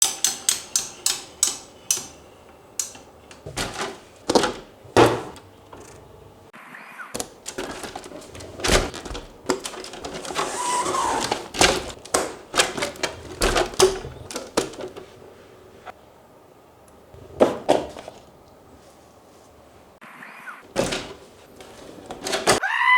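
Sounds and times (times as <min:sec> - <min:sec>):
clicks and clattering knocks: 0:00.0 - 0:02.2, 0:02.8 - 0:06.1, 0:07.2 - 0:15.1, 0:20.7 - 0:22.6.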